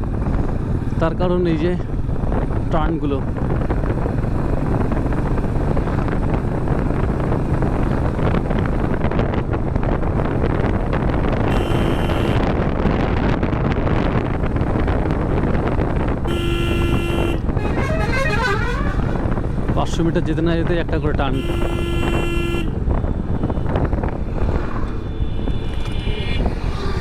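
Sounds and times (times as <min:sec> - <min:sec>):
wind and road noise: 0:00.0 - 0:27.0
vehicle horn: 0:11.5 - 0:12.5, 0:16.2 - 0:19.3, 0:21.3 - 0:22.8.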